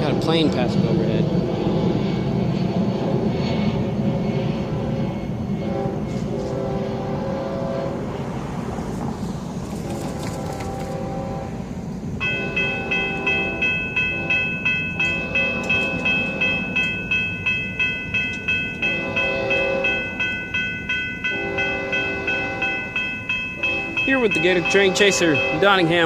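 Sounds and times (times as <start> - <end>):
train rumbling: 0.0 - 26.0
locomotive horn blasts: 5.6 - 8.1, 10.4 - 17.2, 18.2 - 26.0
crossing warning bell ringing: 12.2 - 26.0.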